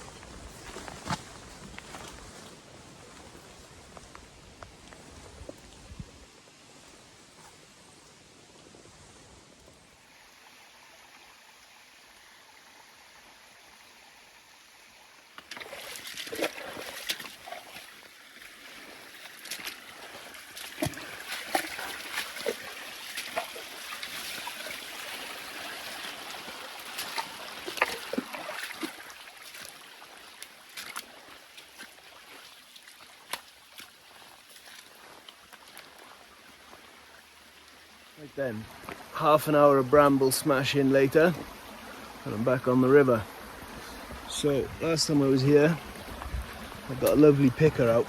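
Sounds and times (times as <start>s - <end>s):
faint steady hiss: 0.0s - 48.0s
water splashing: 15.4s - 37.8s.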